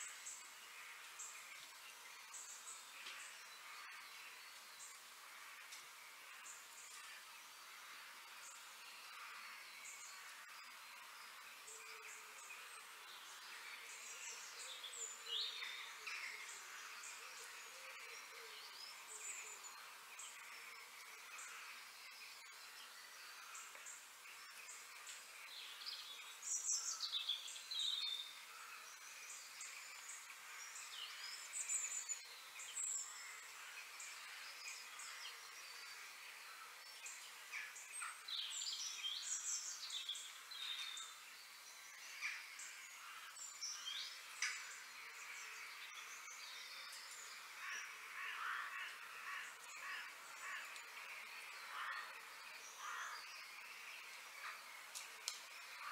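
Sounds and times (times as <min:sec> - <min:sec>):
faint steady hiss: 0:00.0 - 0:55.9
birds chirping and calling: 0:41.8 - 0:55.9.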